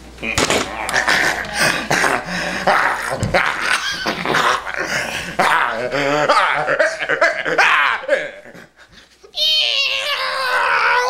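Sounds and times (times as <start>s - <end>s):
man making strange vocal noises: 0.2s - 8.6s.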